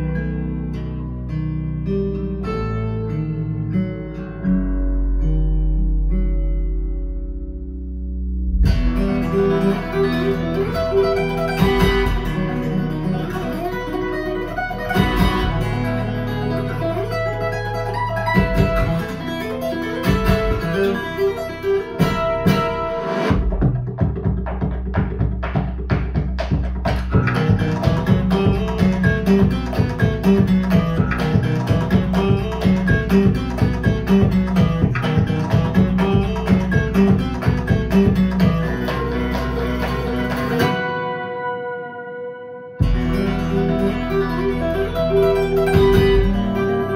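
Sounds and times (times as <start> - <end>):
plucked guitar: 0.0 - 46.9
deep bass line: 4.5 - 40.7, 42.8 - 46.9.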